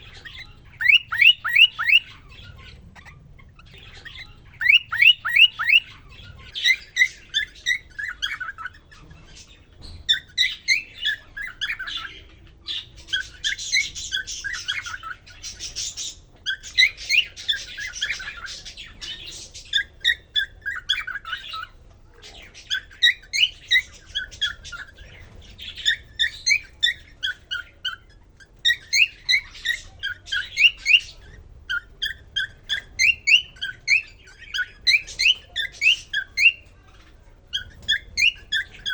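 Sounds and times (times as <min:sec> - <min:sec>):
cockatiel whistled chirps: 0:00.4 - 0:02.2, 0:04.6 - 0:06.0, 0:28.6 - 0:36.6, 0:37.6 - 0:38.9.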